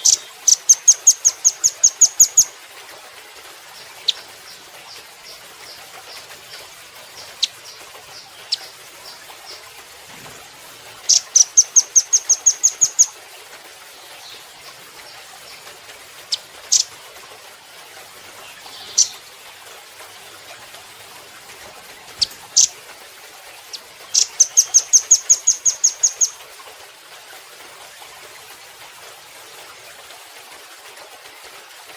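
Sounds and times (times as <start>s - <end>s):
bird trilling and chipping: 0.0s - 2.5s, 3.8s - 9.6s, 11.0s - 13.1s, 16.3s - 16.9s, 18.4s - 19.3s, 22.2s - 22.8s, 23.7s - 26.4s
faint steady hiss: 0.0s - 31.9s.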